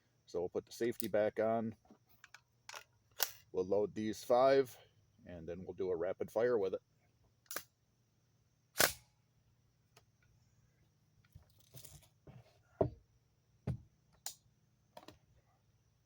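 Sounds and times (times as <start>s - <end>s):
cartridges clicking into magazine: 2.3s - 3.4s, 7.5s - 7.7s.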